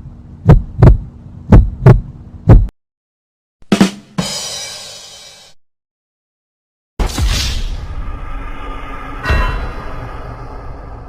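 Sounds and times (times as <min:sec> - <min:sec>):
heartbeat thumps: 0:00.4 - 0:02.7
cymbal crash: 0:07.2 - 0:11.0.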